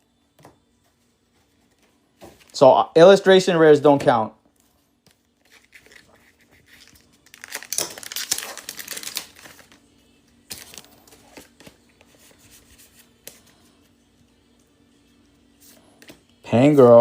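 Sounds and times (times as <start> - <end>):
foil wrapper tearing and crinkling: 5.4 - 9.8, 10.5 - 11.5.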